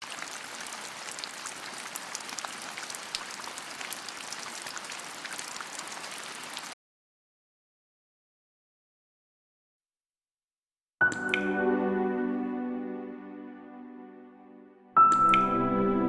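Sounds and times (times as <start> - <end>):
steady rain falling: 0.0 - 6.8.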